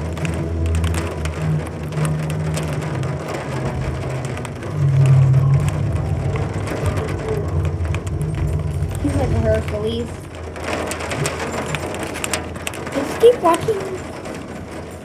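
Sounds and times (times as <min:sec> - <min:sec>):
rain pattering: 0:00.0 - 0:15.0.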